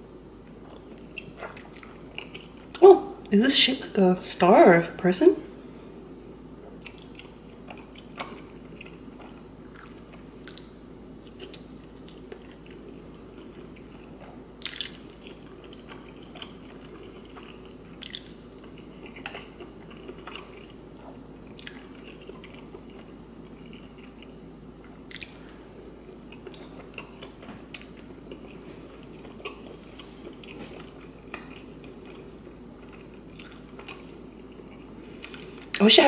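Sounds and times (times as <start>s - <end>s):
wet chewing smacks and clicks: 6.8s - 25.5s, 26.3s - 35.8s.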